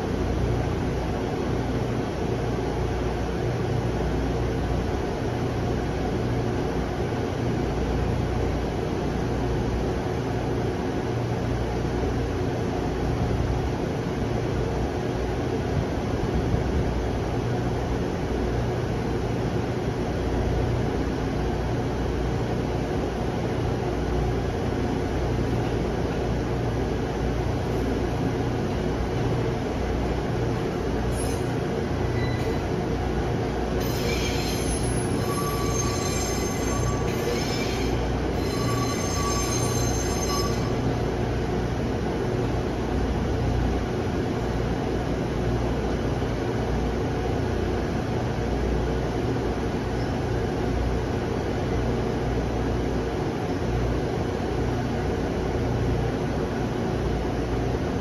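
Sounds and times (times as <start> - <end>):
electric train humming: 23.4 - 45.2
high-pitched squeal: 33.8 - 40.8.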